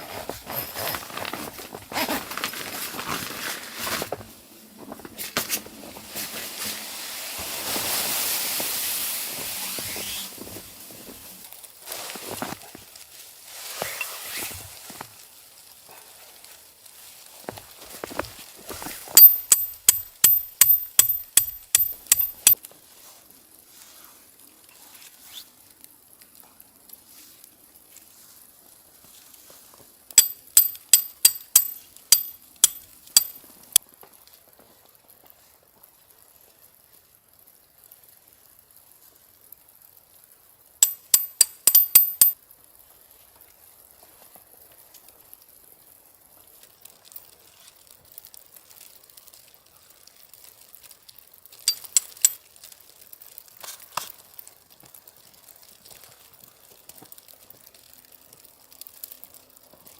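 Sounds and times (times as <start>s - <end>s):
metal utensil clinking on pot: 30.2s - 33.4s, 40.8s - 42.4s, 51.7s - 52.4s.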